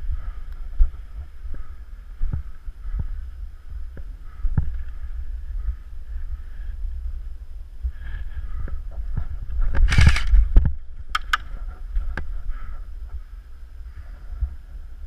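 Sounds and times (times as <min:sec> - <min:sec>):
wind rumble on microphone: 0:00.0 - 0:15.0
sharp clicks: 0:09.8 - 0:10.4, 0:11.1 - 0:11.5.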